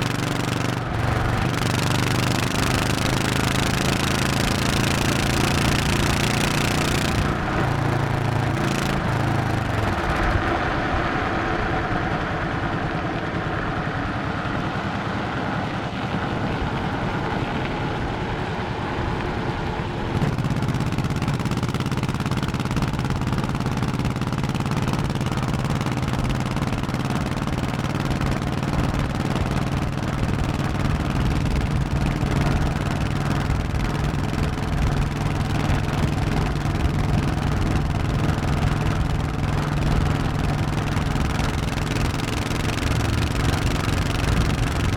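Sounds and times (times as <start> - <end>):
motorcycle engine running: 0.0 - 44.9
wind and road noise: 0.0 - 44.9.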